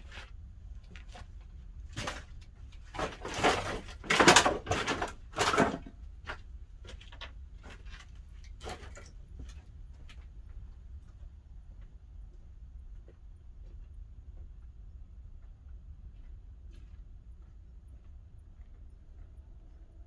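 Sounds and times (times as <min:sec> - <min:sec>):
firewood clattering and scraping: 0:00.0 - 0:09.6.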